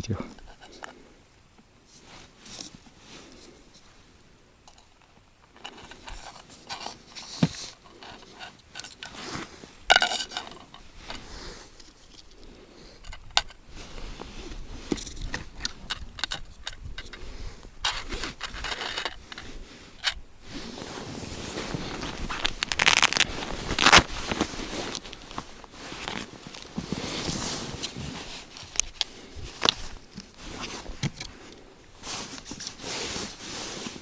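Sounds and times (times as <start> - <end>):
scraping and rustling of gear: 20.6 - 31.4.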